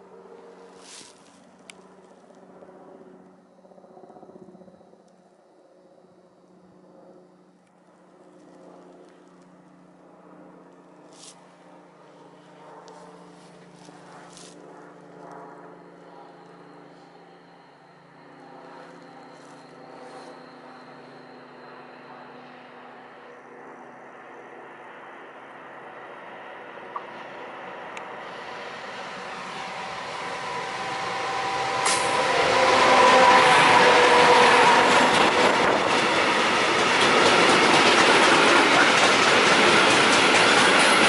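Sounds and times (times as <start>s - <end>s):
wheel and rail noise: 0.0s - 2.4s, 12.4s - 14.6s, 16.4s - 22.7s, 26.3s - 41.0s
electric locomotive hum: 15.2s - 41.0s.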